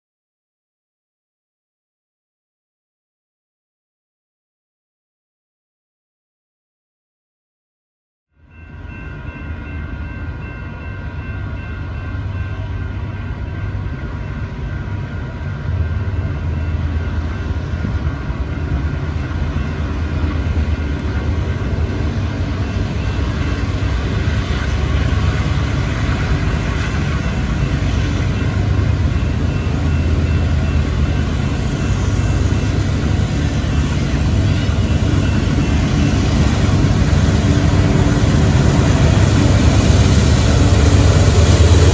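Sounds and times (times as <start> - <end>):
freight train rumble: 8.4 - 41.9.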